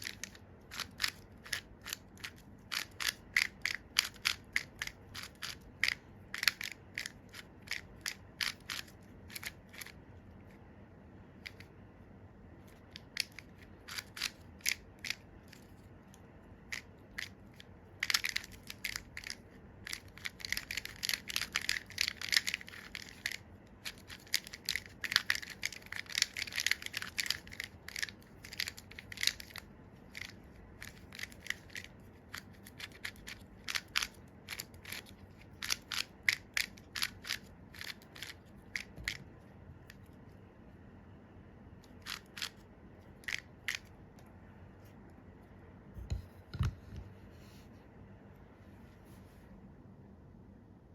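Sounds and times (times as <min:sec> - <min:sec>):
plastic puzzle clicking: 0:00.0 - 0:10.0, 0:12.9 - 0:15.6, 0:16.7 - 0:39.2, 0:41.8 - 0:42.6.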